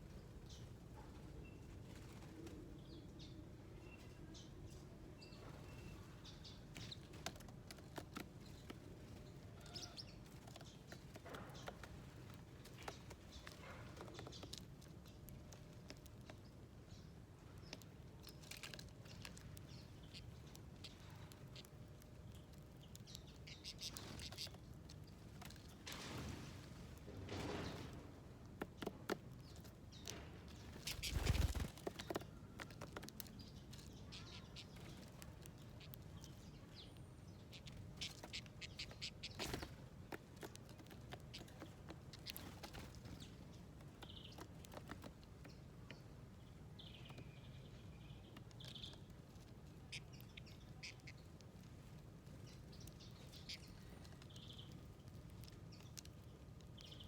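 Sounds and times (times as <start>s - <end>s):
small birds chirping: 0.0s - 57.0s
faint bird chirps: 0.1s - 7.2s, 8.5s - 11.8s, 29.9s - 39.8s, 49.7s - 56.0s
light clicks of birds at feeder: 6.2s - 25.9s, 28.5s - 57.0s
wings flurry: 25.4s - 35.2s.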